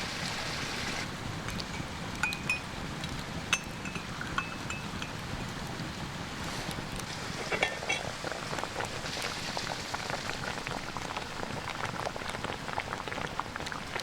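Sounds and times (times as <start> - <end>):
creek rushing: 0.0 - 1.4
campfire crackling and popping: 0.0 - 14.0.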